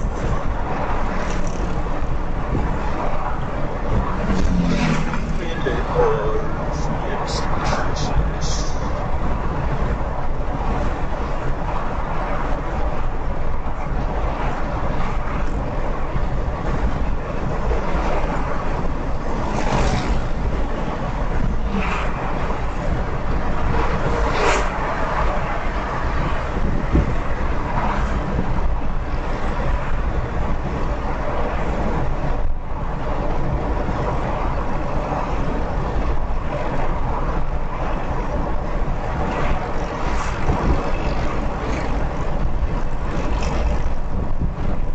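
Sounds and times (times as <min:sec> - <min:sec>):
road and wind noise: 0:00.0 - 0:44.9
vehicles passing: 0:00.0 - 0:44.9.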